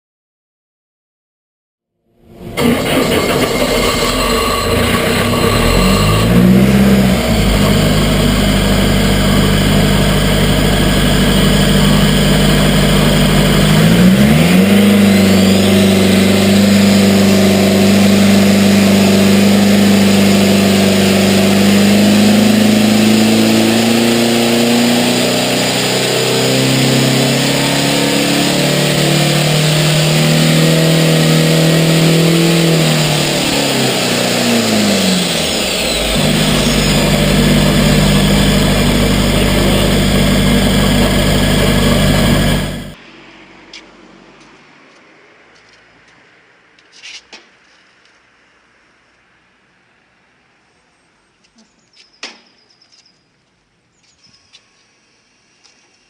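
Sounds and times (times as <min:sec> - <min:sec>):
engine revving: 0:02.1 - 0:43.0.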